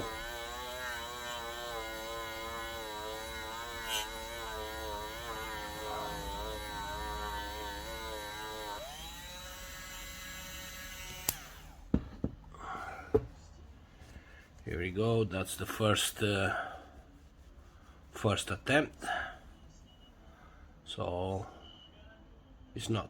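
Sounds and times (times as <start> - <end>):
electric buffer whining: 0.0 - 11.8.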